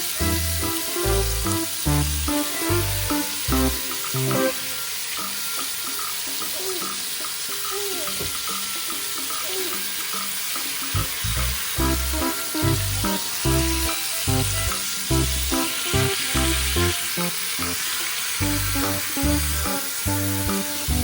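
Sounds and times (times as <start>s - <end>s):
background music: 0.0s - 5.8s, 10.8s - 21.0s
food sizzling in a frying pan: 0.0s - 21.0s.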